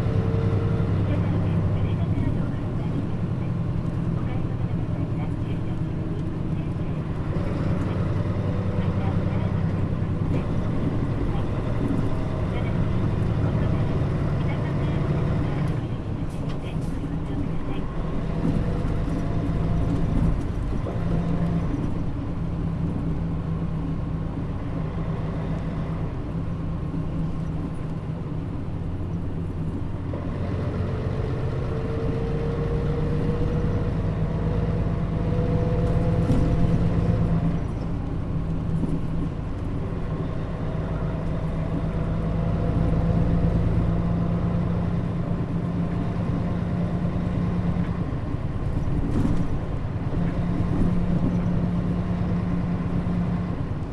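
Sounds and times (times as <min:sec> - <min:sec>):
bus engine drone: 0:00.0 - 0:53.9
road rumble: 0:00.0 - 0:53.9.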